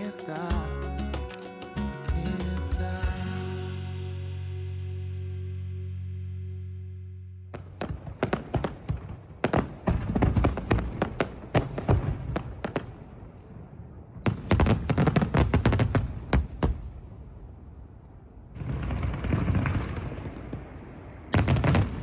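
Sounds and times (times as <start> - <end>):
low rumble: 0.5 - 7.9
fireworks bangs and crackles: 7.6 - 17.8, 18.5 - 22.0.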